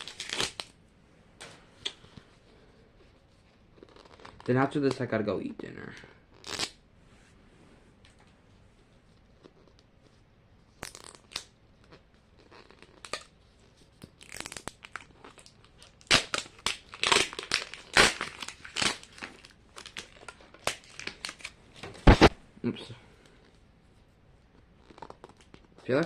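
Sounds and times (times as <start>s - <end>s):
plastic wrapping crinkling: 14.2s - 22.3s.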